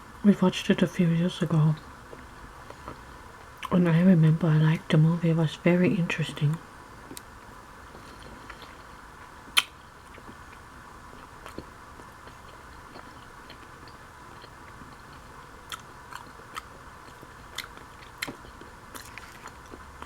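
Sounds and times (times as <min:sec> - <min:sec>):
person chewing: 0:09.6 - 0:20.0.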